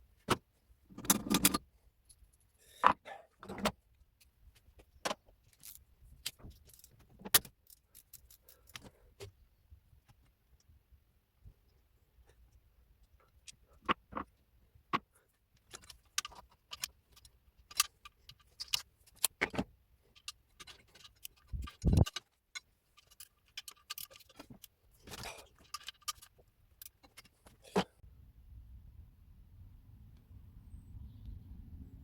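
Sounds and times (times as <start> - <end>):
metal tools clinking: 23.0 - 27.8.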